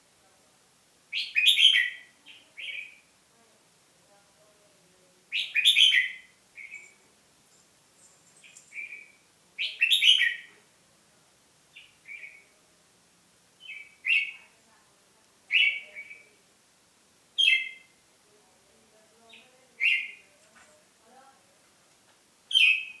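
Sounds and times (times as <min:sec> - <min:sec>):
songbird singing short phrases: 0:01.1 - 0:03.1, 0:05.3 - 0:07.0, 0:08.4 - 0:10.6, 0:11.7 - 0:12.5, 0:13.6 - 0:14.5, 0:15.5 - 0:16.4, 0:17.4 - 0:18.0, 0:19.2 - 0:20.4, 0:22.5 - 0:23.0.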